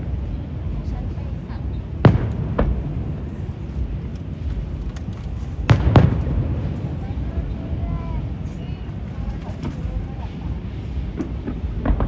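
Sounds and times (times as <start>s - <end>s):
fireworks bangs: 0.0s - 12.0s
low rumble: 0.0s - 12.0s.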